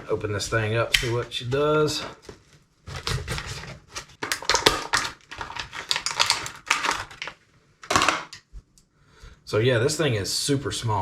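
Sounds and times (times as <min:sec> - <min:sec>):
plastic packaging crackling: 0:01.0 - 0:08.4.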